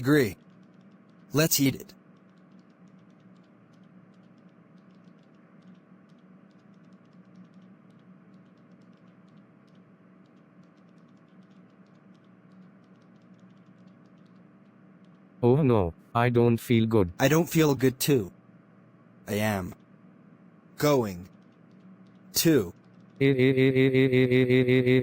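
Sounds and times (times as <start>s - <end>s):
faint rapid clicking: 0.0s - 15.4s, 19.4s - 23.2s
low steady hum: 0.0s - 25.0s.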